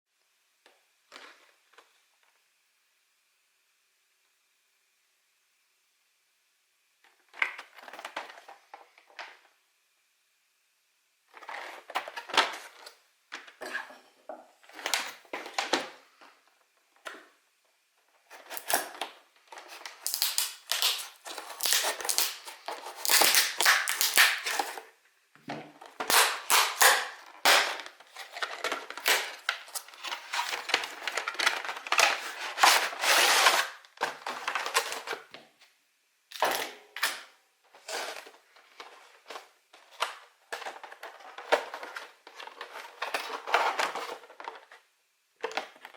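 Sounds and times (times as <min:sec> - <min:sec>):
plastic wrap and cardboard crackling: 0:18.0 - 0:25.0, 0:25.7 - 0:35.7, 0:36.3 - 0:45.9.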